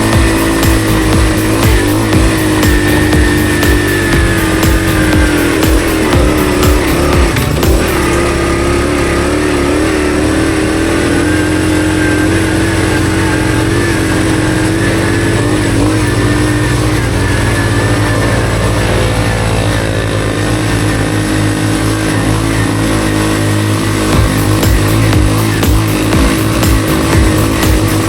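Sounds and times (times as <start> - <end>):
motorbike engine running: 0.0 - 28.0.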